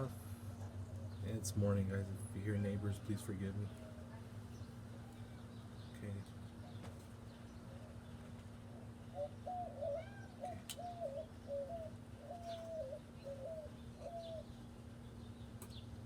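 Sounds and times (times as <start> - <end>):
small birds chirping: 0.0 - 16.0
steady low hum: 0.0 - 16.0
dove cooing: 7.7 - 14.7.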